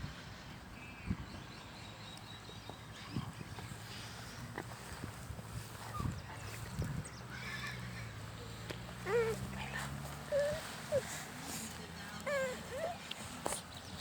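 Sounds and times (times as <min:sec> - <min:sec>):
animal whining calls: 0:09.0 - 0:09.5, 0:10.3 - 0:11.2, 0:12.2 - 0:13.6.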